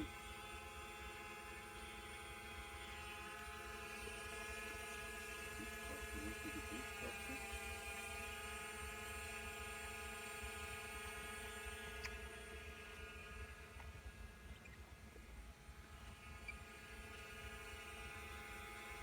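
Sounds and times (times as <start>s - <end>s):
drone propellers whining: 3.6s - 8.3s.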